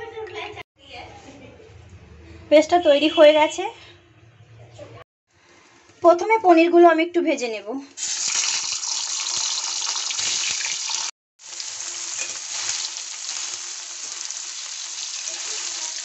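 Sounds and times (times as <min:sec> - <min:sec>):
food sizzling in hot oil: 0:08.0 - 0:16.0.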